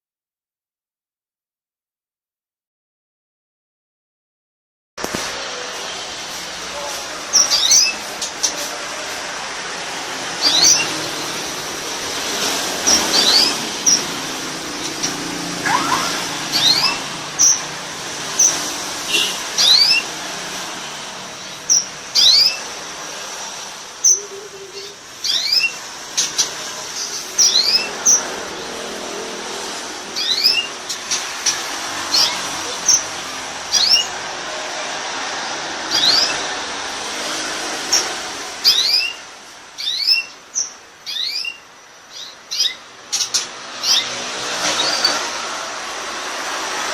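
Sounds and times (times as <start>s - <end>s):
canary chirping: 6.7s - 8.7s, 9.9s - 28.9s, 29.5s - 34.4s, 35.2s - 36.7s, 37.5s - 45.4s.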